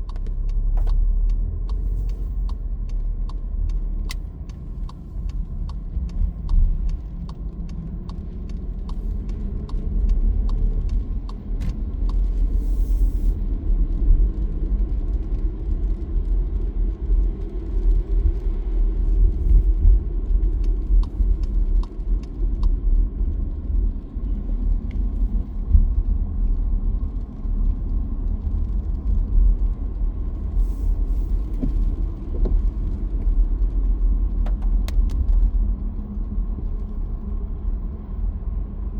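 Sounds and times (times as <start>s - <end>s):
light ticks: 0.0s - 13.0s, 34.4s - 35.5s
car road rumble: 0.0s - 38.9s.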